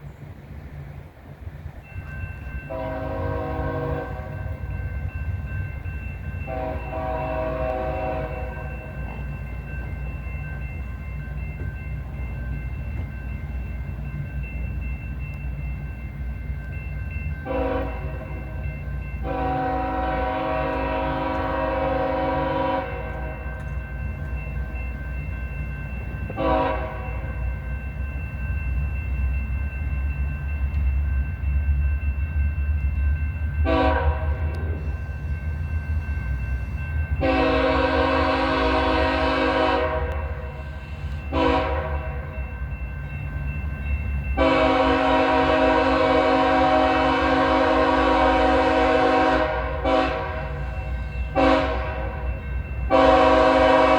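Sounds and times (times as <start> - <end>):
low rumble of train: 0.0 - 53.9
locomotive air horn blasts: 2.7 - 4.4, 6.5 - 8.7, 17.5 - 18.2, 19.2 - 23.4, 26.4 - 27.1, 33.6 - 34.8, 37.2 - 40.6, 41.3 - 42.3, 44.4 - 52.2, 52.9 - 53.9.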